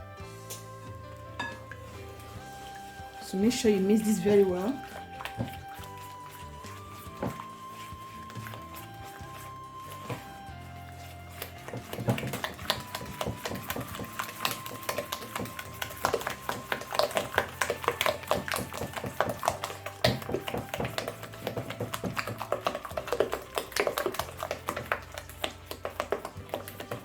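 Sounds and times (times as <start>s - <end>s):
whisk beating eggs in a bowl: 0.6s - 27.0s.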